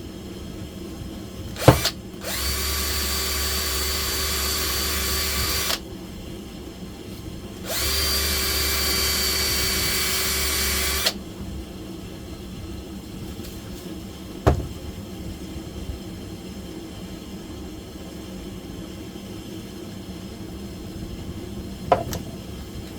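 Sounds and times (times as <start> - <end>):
power tool spinning: 1.6 - 5.8, 7.7 - 11.2.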